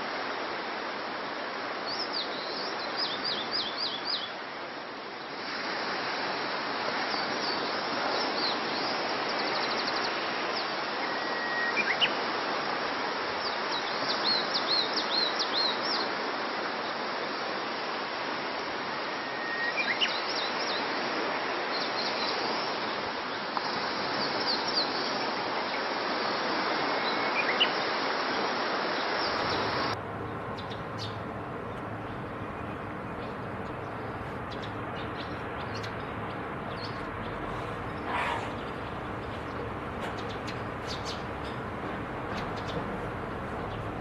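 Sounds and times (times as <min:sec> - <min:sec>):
bird calling: 0:29.1 - 0:44.0.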